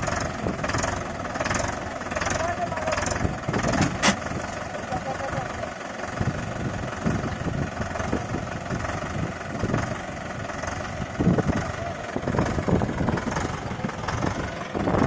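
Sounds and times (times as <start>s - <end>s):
tractor diesel engine chugging: 0.0s - 15.0s.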